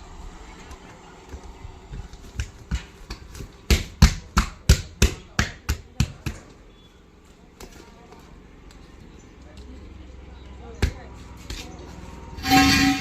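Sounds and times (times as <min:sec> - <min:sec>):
hammer striking steel rim: 0:12.4 - 0:13.0.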